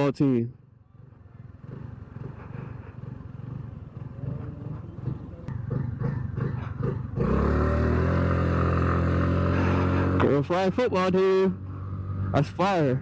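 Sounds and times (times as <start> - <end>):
motorcycle engine running: 0.7 - 10.5.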